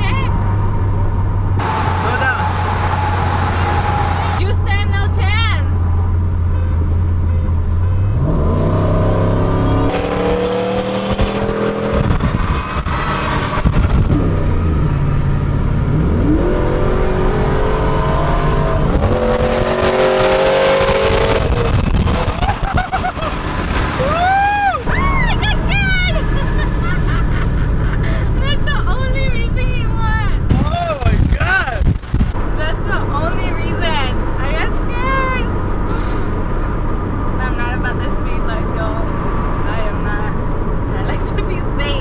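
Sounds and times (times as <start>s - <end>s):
truck engine accelerating hard: 0.0s - 42.0s.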